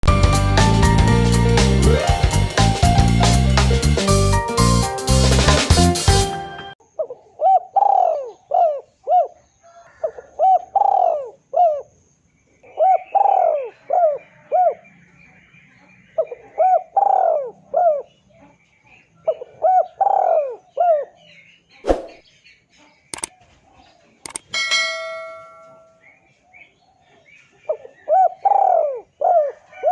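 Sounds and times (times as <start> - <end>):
small birds chirping: 6.8 - 29.8
dove cooing: 7.4 - 9.3, 10.1 - 11.8, 16.5 - 18.0
sharp clicks: 23.2 - 23.4, 24.2 - 24.6.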